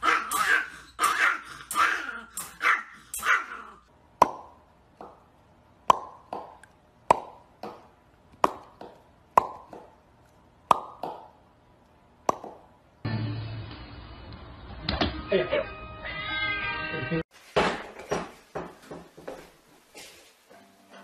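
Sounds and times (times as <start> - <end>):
small dog barking: 0.0 - 3.8.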